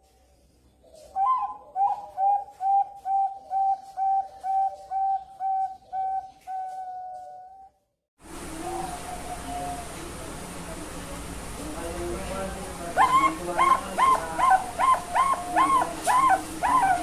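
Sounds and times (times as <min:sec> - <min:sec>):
dove cooing: 0:00.8 - 0:07.7, 0:08.4 - 0:10.2, 0:13.0 - 0:17.0.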